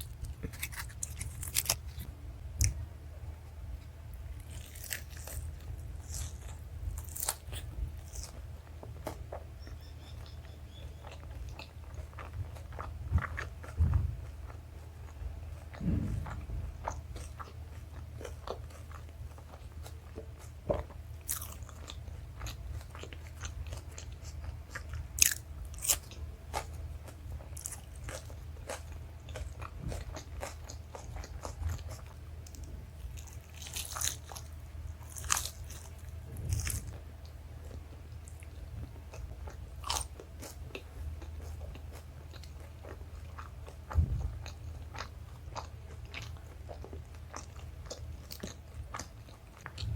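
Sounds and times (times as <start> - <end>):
steady low hum: 0.0 - 49.9
chewing and wet mouth sounds: 4.4 - 49.9
louder knocks: 15.8 - 16.8.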